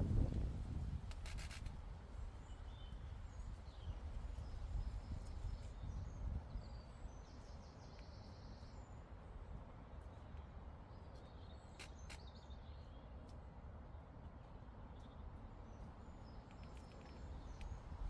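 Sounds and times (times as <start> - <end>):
soft clicks: 16.4 - 17.8.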